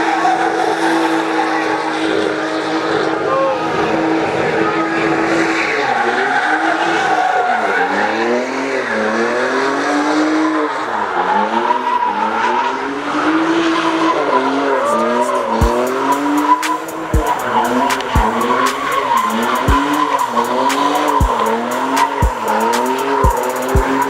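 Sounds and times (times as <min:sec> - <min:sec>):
car engine revving hard: 0:00.0 - 0:24.0
tyres screeching: 0:10.5 - 0:24.0
sharp clicks: 0:15.6 - 0:24.0.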